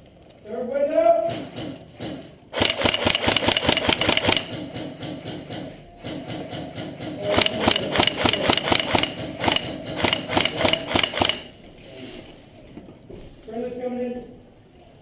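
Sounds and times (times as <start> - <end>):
airsoft gun rapid shots: 1.3 - 11.6.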